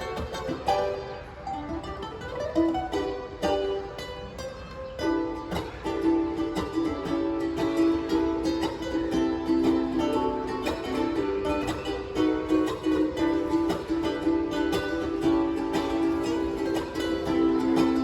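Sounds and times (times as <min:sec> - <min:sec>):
ukulele melody: 0:00.0 - 0:18.0
ukulele strumming chords: 0:00.0 - 0:18.0.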